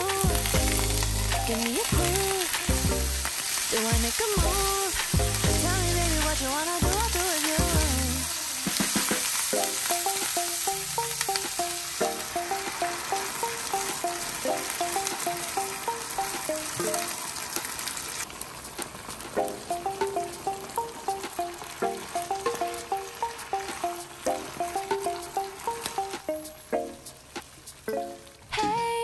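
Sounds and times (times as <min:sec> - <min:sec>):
background music: 0:00.0 - 0:17.9, 0:19.2 - 0:29.0
food sizzling in hot oil: 0:00.0 - 0:29.0.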